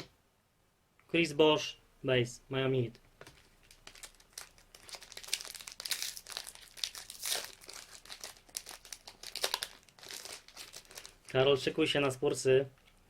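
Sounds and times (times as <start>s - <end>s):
wrapper crinkling and tearing: 3.2s - 11.5s.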